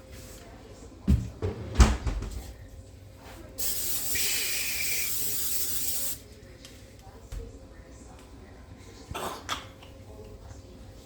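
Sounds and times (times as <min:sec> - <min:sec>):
aerosol spray hissing: 0:03.6 - 0:06.2.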